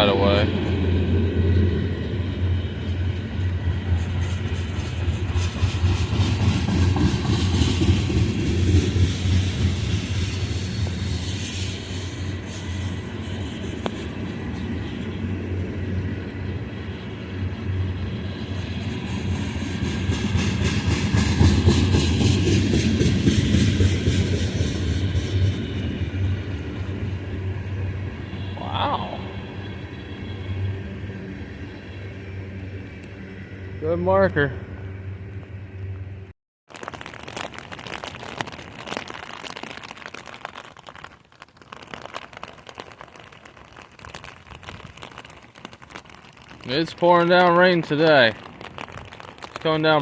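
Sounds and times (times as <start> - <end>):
freight train rumbling: 0.0 - 36.3.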